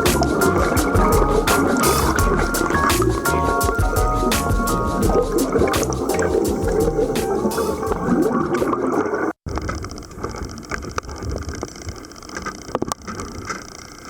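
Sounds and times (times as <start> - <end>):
background music: 0.0 - 8.8
muffled underwater rumble: 0.0 - 8.9.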